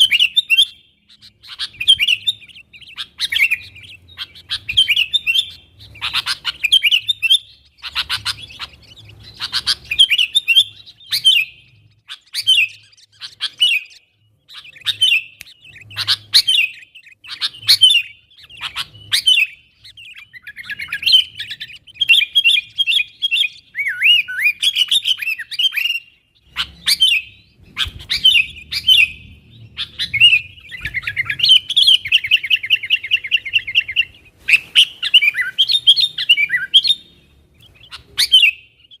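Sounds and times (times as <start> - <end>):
bird chattering trill: 0.0 - 39.0
bird singing bubbly phrases: 0.0 - 39.0.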